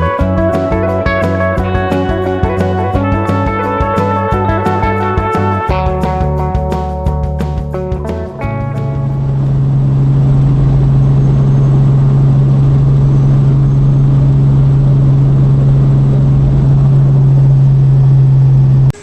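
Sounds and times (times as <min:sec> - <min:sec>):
loud engine drone: 0:08.4 - 0:19.0.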